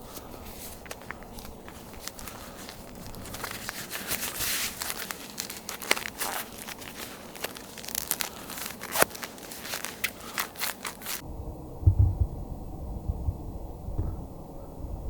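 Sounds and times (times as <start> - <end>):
boots crunching on snow: 0.0 - 11.2.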